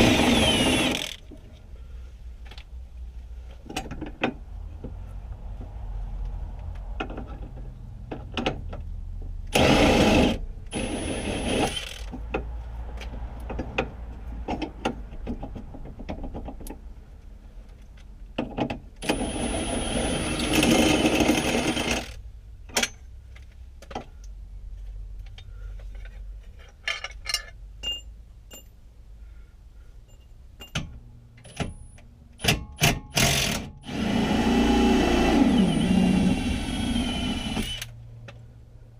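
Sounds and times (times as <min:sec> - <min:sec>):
power tool bursts: 0:00.0 - 0:01.2, 0:33.2 - 0:37.9
tools clinking on metal: 0:26.6 - 0:28.8.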